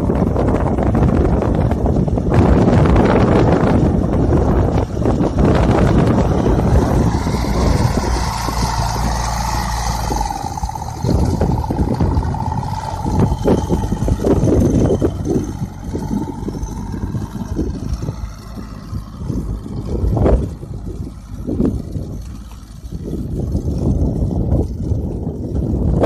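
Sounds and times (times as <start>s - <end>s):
tractor engine running: 0.0s - 26.0s
wind buffeting microphone: 0.0s - 26.0s.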